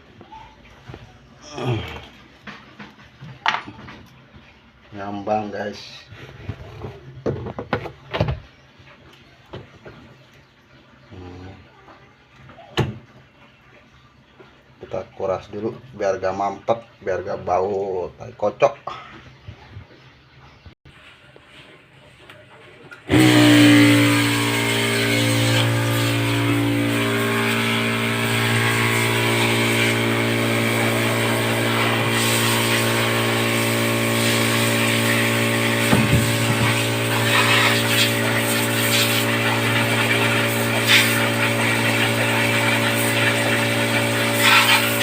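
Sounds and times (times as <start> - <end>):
electric motor humming and hissing: 23.1 - 45.0.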